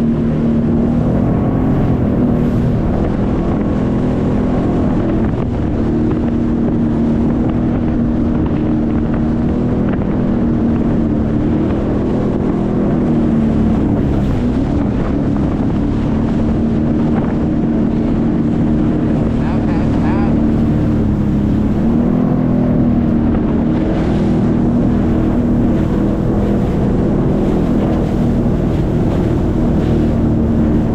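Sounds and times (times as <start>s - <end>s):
jet ski engine running: 0.0s - 30.9s
wind buffeting the microphone: 0.0s - 30.9s.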